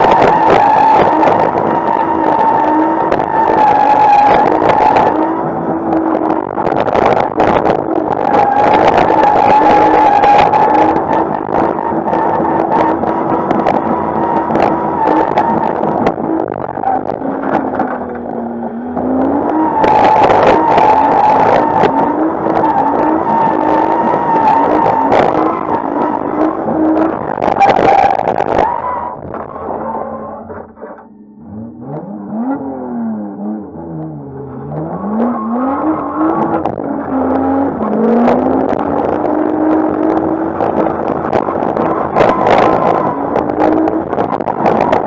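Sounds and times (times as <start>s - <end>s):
car engine revving hard: 31.4s - 45.0s.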